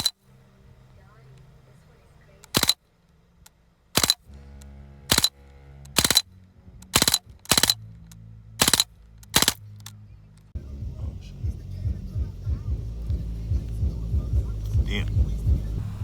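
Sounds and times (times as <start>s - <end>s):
bb gun shots: 2.5s - 2.8s, 4.0s - 4.2s, 5.1s - 5.3s, 5.9s - 6.2s, 6.8s - 7.8s, 8.6s - 9.9s.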